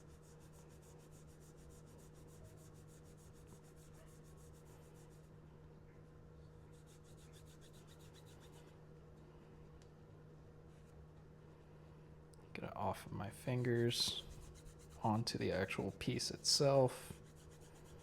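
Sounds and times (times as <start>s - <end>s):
steady low hum: 0.0s - 18.0s
cloth rubbing on metal: 13.4s - 18.0s.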